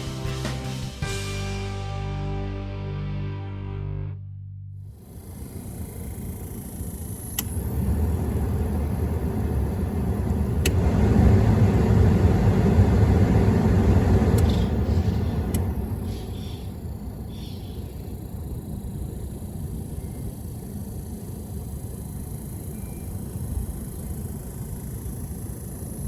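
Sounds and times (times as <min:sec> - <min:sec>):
motor vehicle rumbling: 0:00.0 - 0:16.9.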